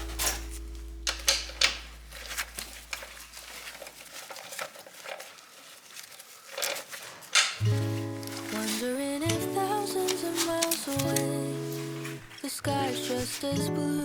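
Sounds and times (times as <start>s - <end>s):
metal tools clinking: 0.0s - 4.0s, 6.5s - 13.5s
background music: 7.6s - 14.0s.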